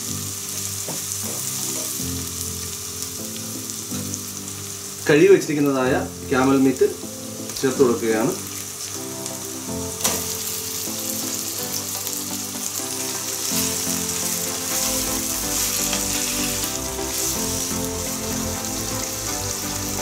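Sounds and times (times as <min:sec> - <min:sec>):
meat sizzling in hot oil: 0:00.0 - 0:20.0
wooden spoon stirring: 0:13.0 - 0:19.0.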